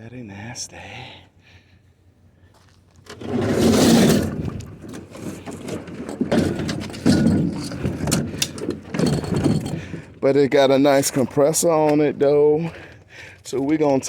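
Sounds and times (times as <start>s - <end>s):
hard objects scraping and knocking: 3.1s - 10.2s.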